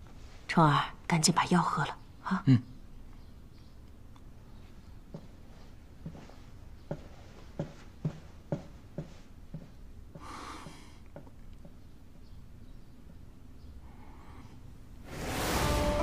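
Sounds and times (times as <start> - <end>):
footsteps on hard floor: 5.1 - 10.3.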